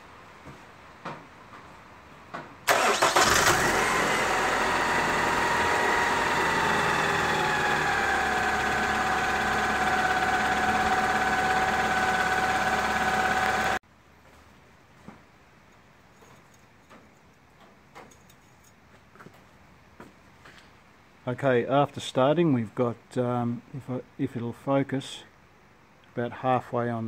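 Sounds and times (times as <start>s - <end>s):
car engine cranking: 2.7s - 13.8s
car engine idling: 2.7s - 13.8s.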